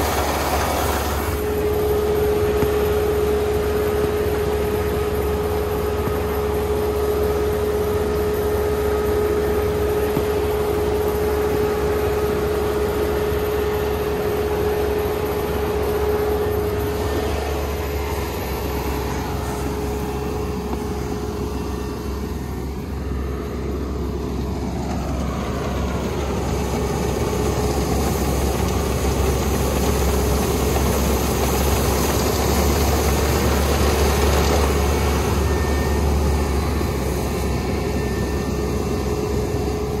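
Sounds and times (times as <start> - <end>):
combine harvester running: 0.0 - 40.0
high steady whine: 0.0 - 40.0.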